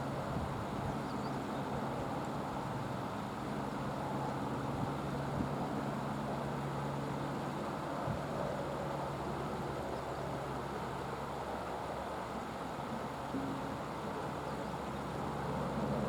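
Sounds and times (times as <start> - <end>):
helicopter drone: 15.0 - 16.0.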